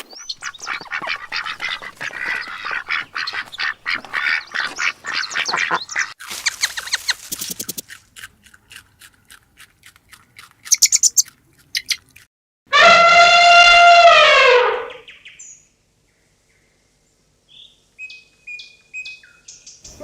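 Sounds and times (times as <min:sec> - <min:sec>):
birds quacking: 0:00.0 - 0:07.2
high bird chirping: 0:00.0 - 0:07.8, 0:10.7 - 0:12.0.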